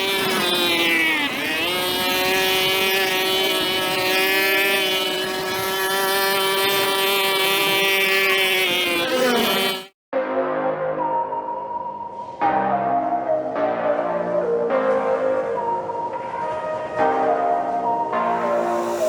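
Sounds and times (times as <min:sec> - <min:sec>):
brush cutter engine running: 0:00.0 - 0:10.0.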